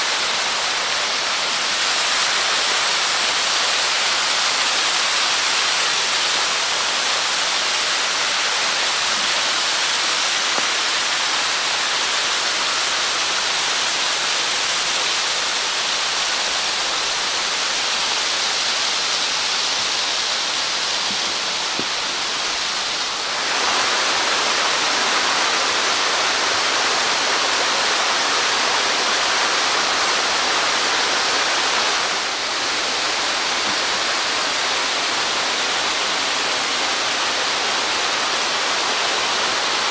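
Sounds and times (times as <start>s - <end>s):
small waterfall rushing: 0.0s - 39.9s.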